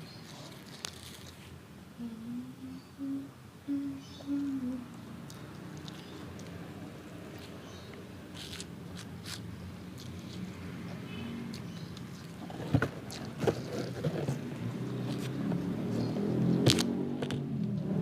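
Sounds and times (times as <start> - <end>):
low steady hum: 0.0 - 15.9
person chewing food: 5.2 - 12.4.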